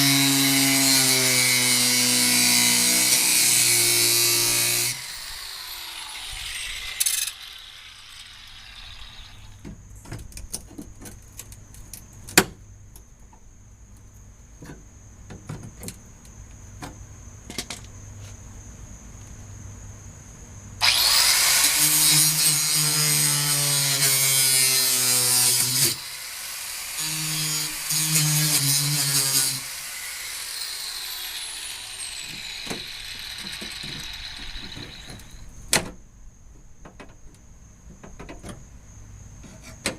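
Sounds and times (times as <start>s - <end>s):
electric power tool running: 4.2s - 9.6s, 20.8s - 22.8s, 24.8s - 35.4s.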